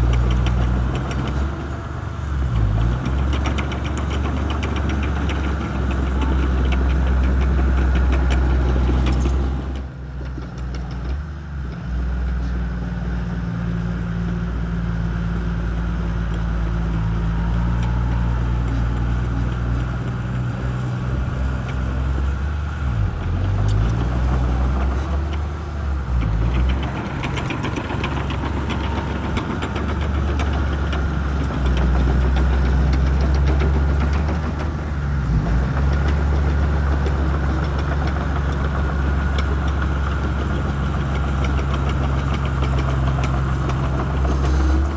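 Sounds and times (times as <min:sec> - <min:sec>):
bulldozer diesel engine running: 0:00.0 - 0:44.9
clanking tracks: 0:23.0 - 0:44.9.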